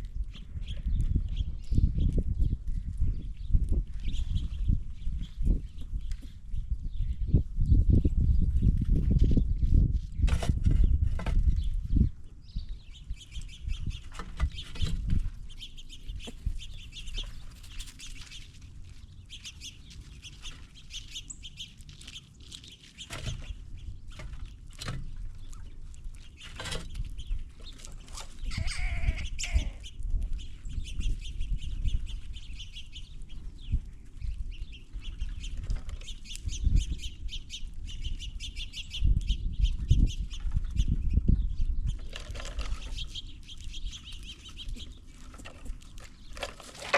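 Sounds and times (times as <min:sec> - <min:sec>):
bird call: 0:28.2 - 0:29.9.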